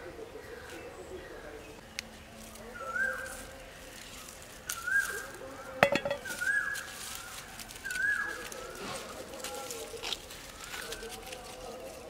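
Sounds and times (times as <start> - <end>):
tomato clinking into steel bowl: 5.8 - 6.5.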